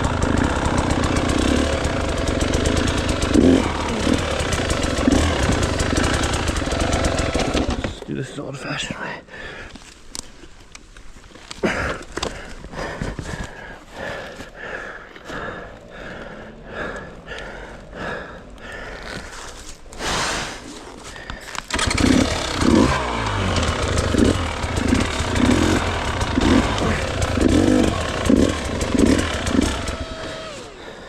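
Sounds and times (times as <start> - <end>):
engine starter strokes: 0.0 - 8.0, 21.5 - 31.0
dirt bike engine revving: 0.0 - 8.1, 21.7 - 31.0.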